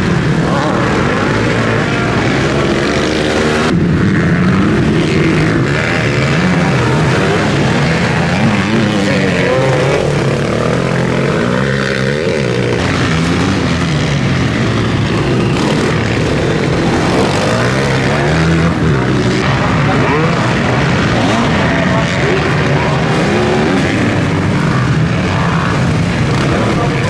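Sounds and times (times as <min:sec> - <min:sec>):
motocross bikes racing: 0:00.0 - 0:27.0.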